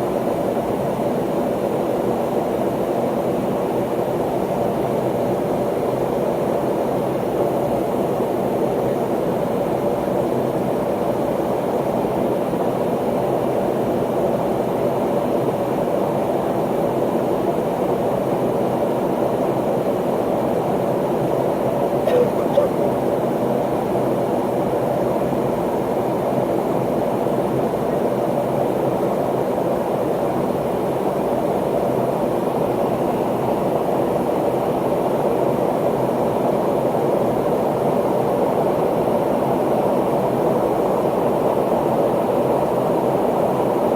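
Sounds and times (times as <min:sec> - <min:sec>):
airliner cabin drone: 0:21.6 - 0:23.7.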